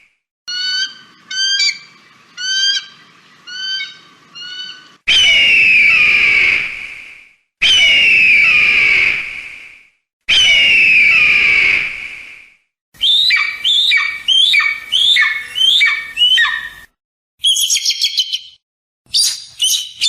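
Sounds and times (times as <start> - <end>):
eagle piping calls: 0.5 - 6.5, 13.0 - 20.0
eagle screaming: 0.5 - 6.6, 7.6 - 9.1, 10.3 - 11.8, 13.0 - 16.8.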